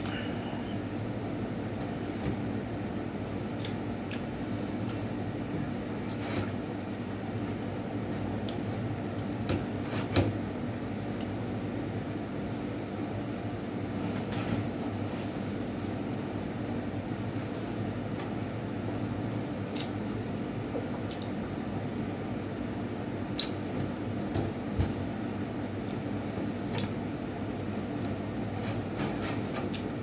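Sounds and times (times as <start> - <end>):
steady background hum: 0.0 - 30.0
wet mouth sounds of eating: 21.1 - 21.4.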